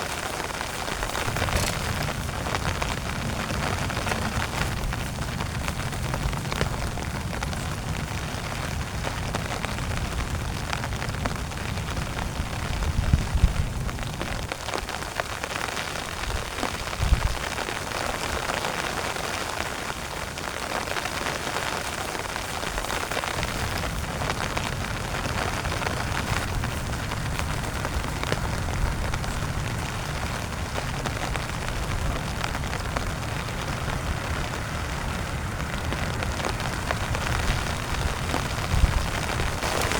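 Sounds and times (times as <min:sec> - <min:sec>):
heavy rain pattering on a tent: 0:00.0 - 0:39.9
low rumbles: 0:00.6 - 0:14.4, 0:23.0 - 0:39.9.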